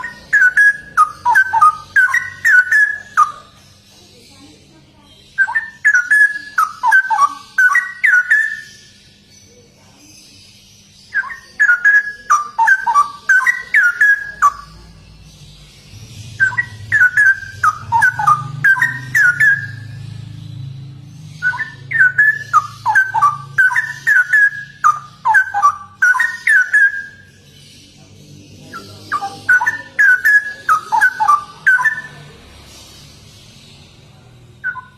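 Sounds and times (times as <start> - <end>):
bird singing rapid whistled notes: 0.0 - 4.6, 5.2 - 34.9.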